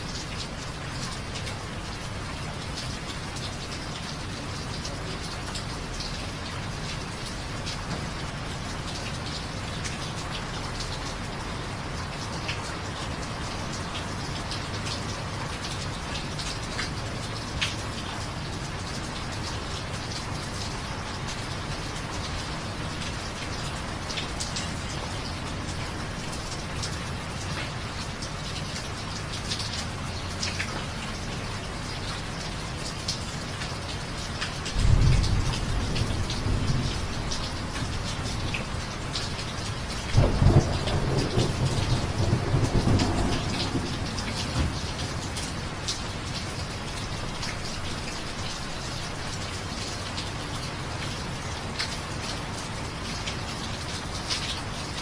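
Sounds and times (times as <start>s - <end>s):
steady rain: 0.0s - 55.0s
raindrops tapping: 12.1s - 50.3s.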